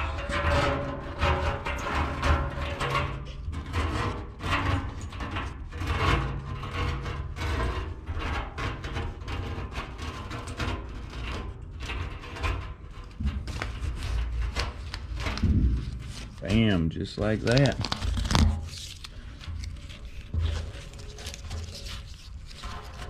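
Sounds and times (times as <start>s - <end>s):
filter bag rubbing and scraping: 12.0s - 23.0s.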